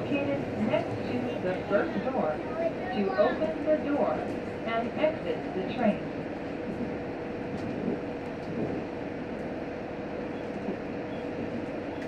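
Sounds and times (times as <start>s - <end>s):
train wheels rumbling: 0.0s - 12.0s.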